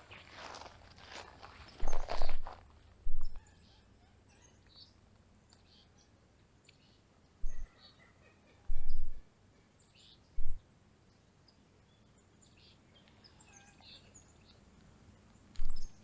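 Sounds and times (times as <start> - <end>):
low outdoor hiss: 0.0 - 16.0
faint bird chirps: 3.0 - 14.6, 15.3 - 16.0
low rumble on microphone: 10.4 - 10.6.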